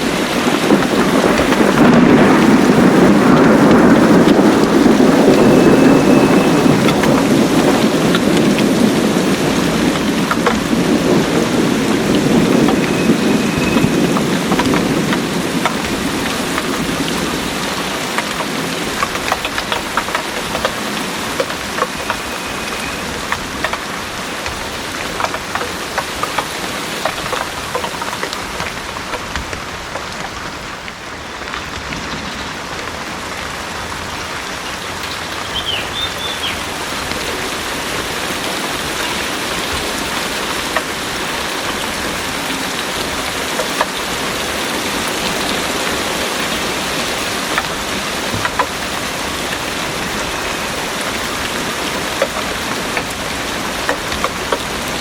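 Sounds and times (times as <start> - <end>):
low rumble of thunder: 0.0 - 29.7
heavy rain pouring: 0.0 - 55.0.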